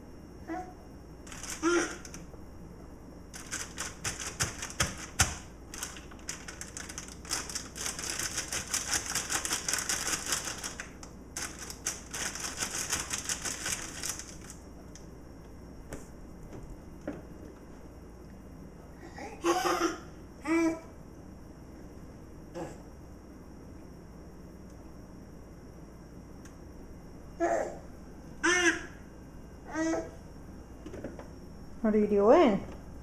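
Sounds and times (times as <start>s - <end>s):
child squeaking: 1.6s - 2.1s.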